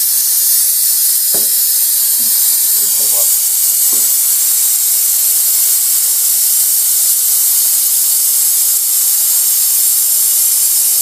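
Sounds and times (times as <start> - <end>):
steam machine hissing: 0.0 - 11.0.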